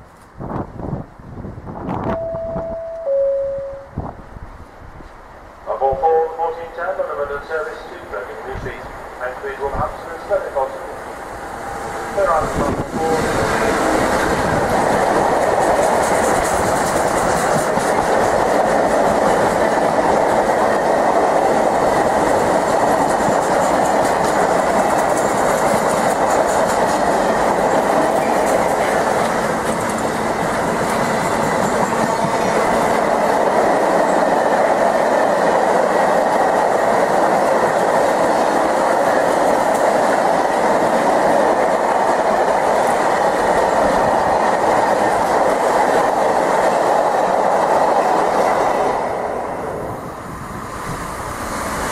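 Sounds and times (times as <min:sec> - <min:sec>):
train wheels rumbling on rails: 0:04.0 - 0:51.9
wheels clacking over rail joints: 0:11.6 - 0:48.8.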